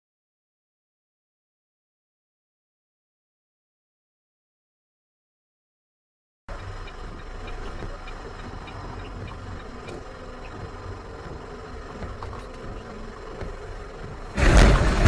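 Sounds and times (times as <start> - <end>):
faint ticks: 6.5 - 14.4
vehicle engine and road rumble: 6.5 - 15.0.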